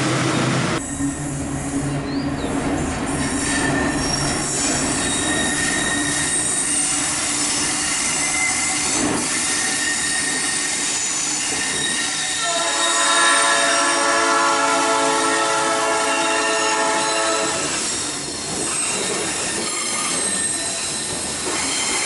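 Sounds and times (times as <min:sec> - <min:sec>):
freight train passing: 0:00.0 - 0:22.0
train wheels squealing: 0:00.8 - 0:13.1, 0:16.6 - 0:22.0
train horn: 0:11.8 - 0:17.8.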